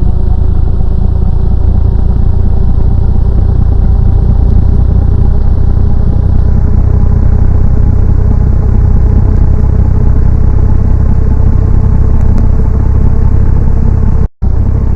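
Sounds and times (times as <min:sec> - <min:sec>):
ceiling fan rumble: 0:00.0 - 0:14.9
faint even hum: 0:00.0 - 0:14.9.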